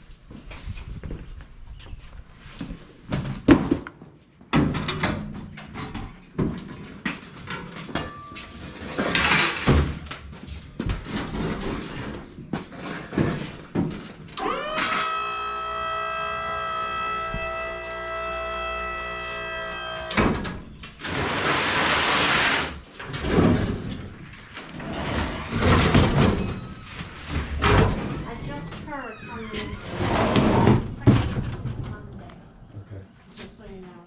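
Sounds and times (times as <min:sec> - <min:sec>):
small electric motor running: 0:14.4 - 0:20.2.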